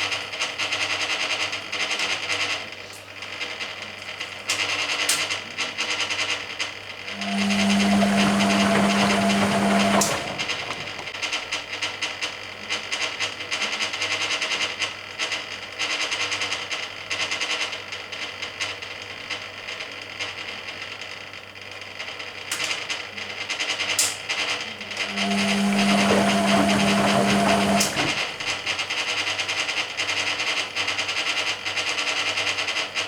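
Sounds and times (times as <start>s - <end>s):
washing machine motor hum: 7.1s - 11.7s, 24.2s - 30.0s
rinse water splashing: 7.2s - 11.2s, 25.1s - 28.9s.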